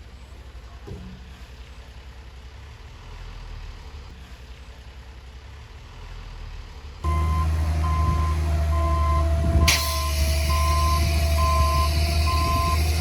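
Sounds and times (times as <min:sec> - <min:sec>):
close heavy diesel engine: 0:00.0 - 0:13.0
diesel machinery rumbling: 0:00.0 - 0:13.0
reversing alarm beeping: 0:07.1 - 0:13.0.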